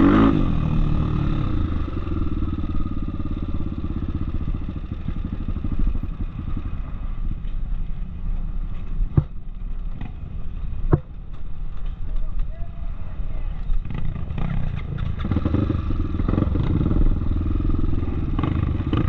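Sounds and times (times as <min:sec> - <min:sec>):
motorcycle engine idling: 0:00.5 - 0:08.6, 0:13.5 - 0:19.0.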